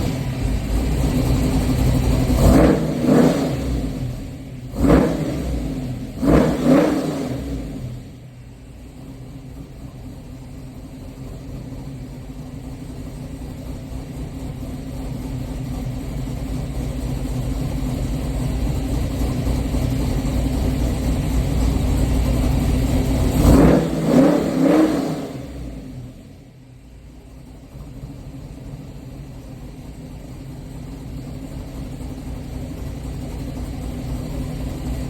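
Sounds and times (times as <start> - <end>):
engine revving: 0.0 - 8.3, 17.7 - 26.5
car engine rumbling: 0.0 - 35.0.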